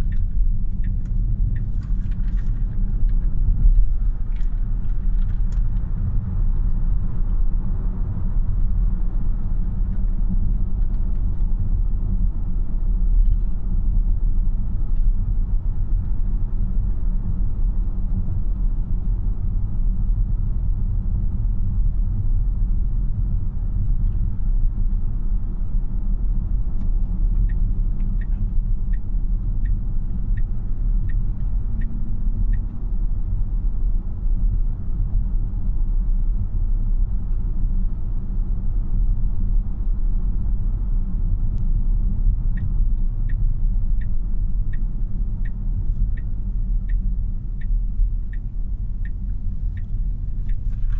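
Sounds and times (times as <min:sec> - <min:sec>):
road and tyre rumble in car: 0:00.0 - 0:50.9
evenly spaced ticks: 0:29.6 - 0:32.7, 0:44.0 - 0:50.9.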